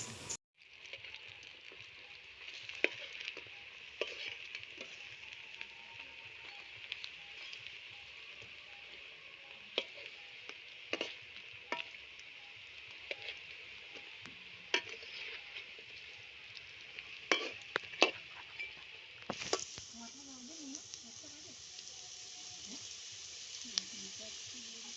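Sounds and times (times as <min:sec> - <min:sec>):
fritters sizzling in hot oil: 0:00.0 - 0:24.9
sharp clicks of frying oil: 0:00.6 - 0:24.9.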